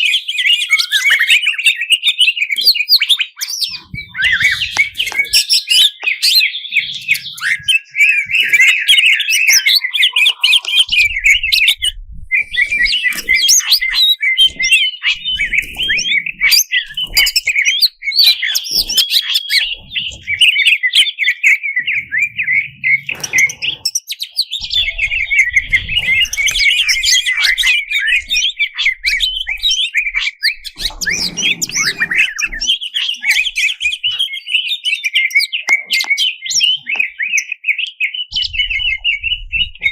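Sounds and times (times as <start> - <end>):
leafbird singing chirps and trills: 0.0 - 39.9.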